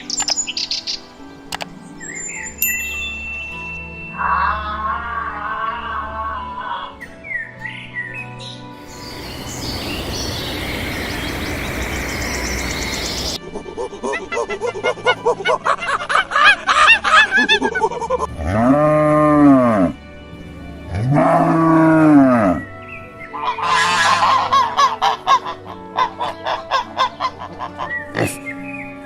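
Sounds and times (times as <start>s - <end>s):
background music: 0.0s - 29.0s
waterfowl honking: 8.8s - 13.4s, 23.4s - 28.4s.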